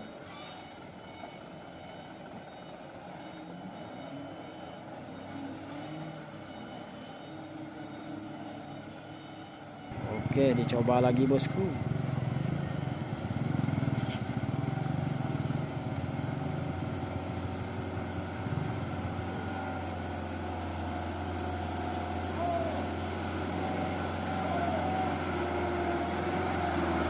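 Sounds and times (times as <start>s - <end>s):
diesel truck engine straining: 9.9s - 27.0s.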